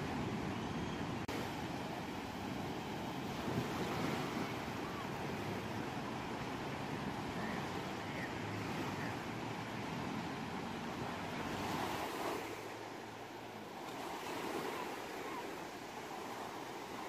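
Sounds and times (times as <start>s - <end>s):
ocean waves breaking: 0.0s - 17.0s.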